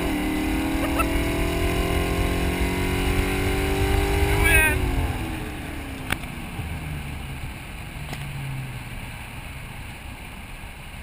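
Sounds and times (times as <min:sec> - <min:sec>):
car engine revs dropping: 0:00.0 - 0:05.4.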